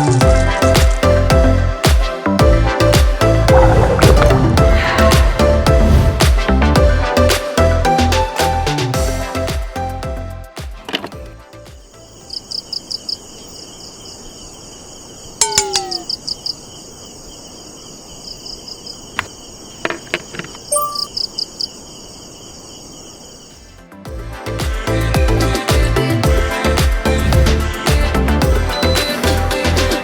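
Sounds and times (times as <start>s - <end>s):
music: 0.0s - 12.3s, 23.8s - 30.0s
insects chirping in rhythmic trains: 11.8s - 23.7s
falling bird call: 15.4s - 16.4s.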